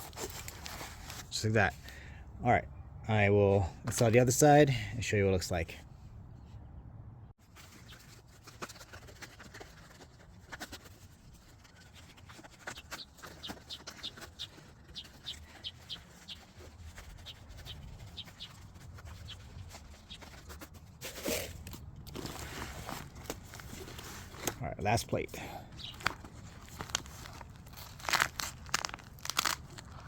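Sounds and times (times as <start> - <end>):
bird chirping: 12.6 - 20.4, 25.6 - 26.1.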